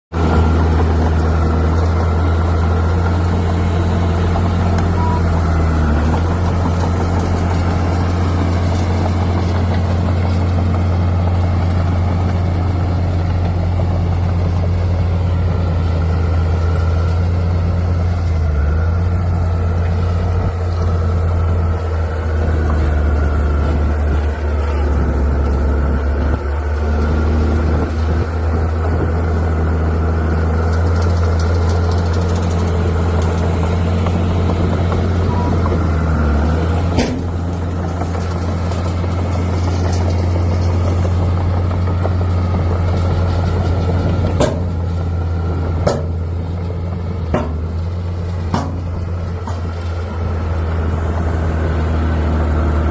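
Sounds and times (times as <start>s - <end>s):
bulldozer diesel engine droning: 0.1s - 52.9s.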